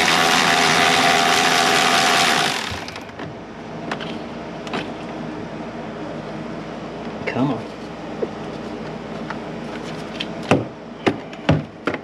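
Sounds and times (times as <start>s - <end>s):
cordless power tool spinning: 0.0s - 3.0s.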